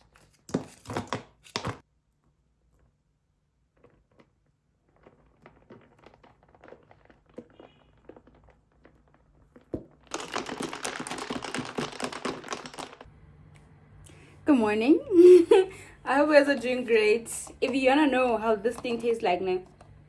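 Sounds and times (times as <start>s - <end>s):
handling clicks and rustles: 3.8s - 13.1s
loud crinkling and crackling: 3.8s - 13.1s.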